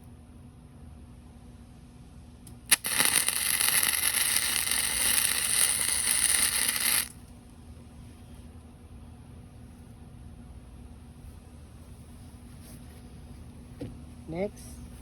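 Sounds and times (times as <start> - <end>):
welding arc strike click: 2.5 - 7.2
welding arc crackling: 2.5 - 7.3.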